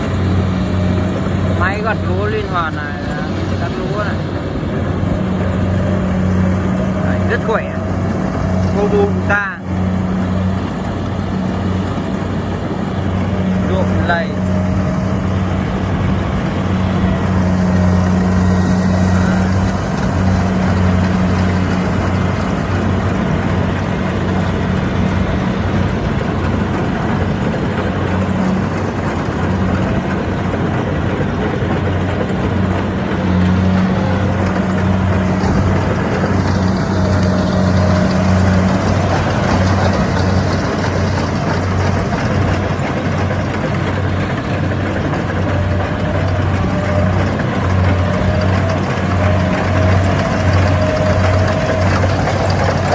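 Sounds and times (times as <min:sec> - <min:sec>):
clatter and whir of threshing gear: 0:00.0 - 0:52.9
diesel engine running under load: 0:00.0 - 0:52.9.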